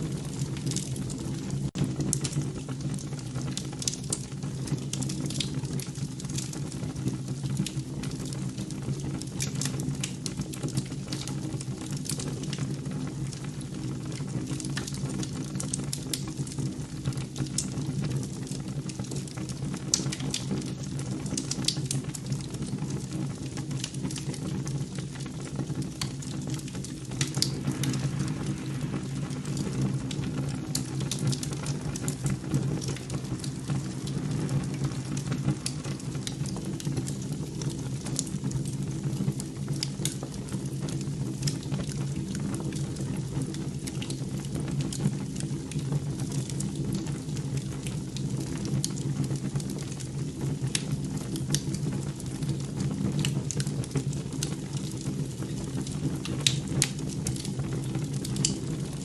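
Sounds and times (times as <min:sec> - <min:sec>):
crackling clicks: 0:26.0 - 0:37.2.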